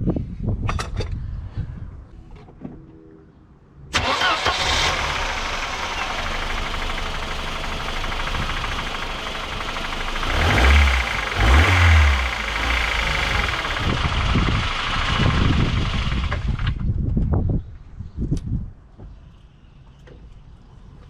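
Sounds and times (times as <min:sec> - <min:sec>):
car engine idling with rattle: 0:04.0 - 0:17.1
loud low rumbles: 0:04.9 - 0:17.1.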